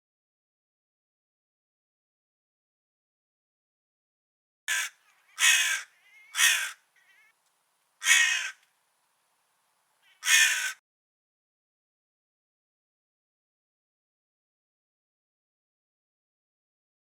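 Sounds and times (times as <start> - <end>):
crow cawing: 4.7 - 7.4, 8.0 - 8.6, 10.0 - 10.8.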